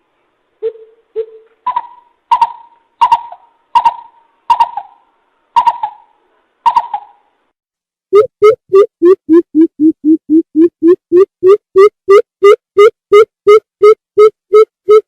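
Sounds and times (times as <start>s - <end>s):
bird hooting call: 1.7s - 5.0s, 5.6s - 6.1s.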